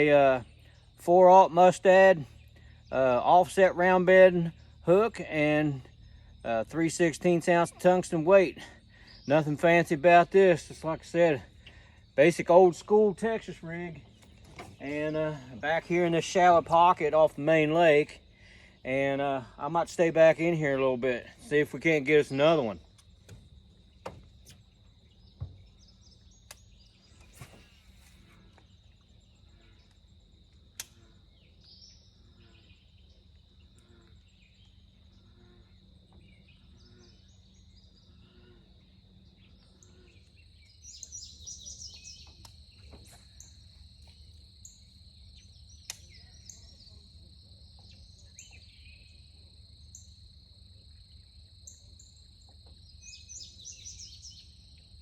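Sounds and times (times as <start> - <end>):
birds chirping: 0.0 - 50.4, 51.1 - 55.0
high insect trill: 0.0 - 55.0
sharp clicks: 30.7 - 31.0.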